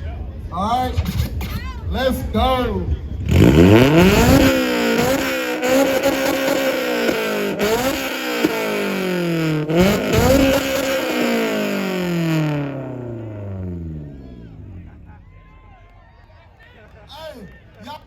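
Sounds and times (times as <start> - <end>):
car engine revving: 2.8 - 15.2.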